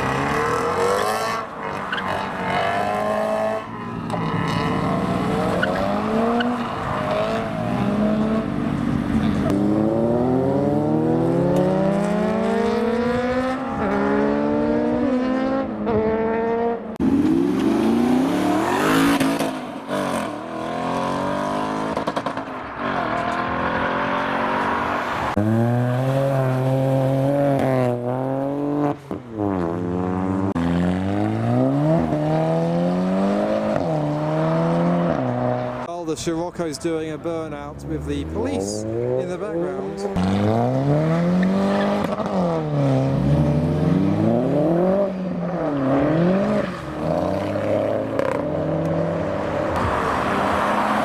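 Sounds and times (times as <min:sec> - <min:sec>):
car engines accelerating: 0:00.0 - 0:51.0.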